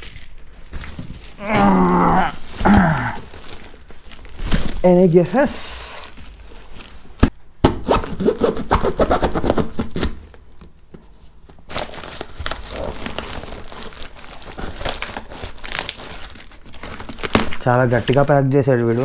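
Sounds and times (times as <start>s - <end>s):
packaging tearing and crinkling: 0.0s - 5.2s, 11.7s - 18.3s.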